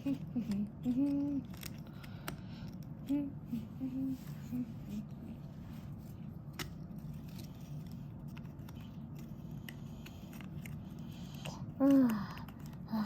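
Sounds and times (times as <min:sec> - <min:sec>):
puzzle pieces being handled: 0:00.0 - 0:03.2, 0:04.1 - 0:13.0
low steady hum: 0:00.0 - 0:13.0.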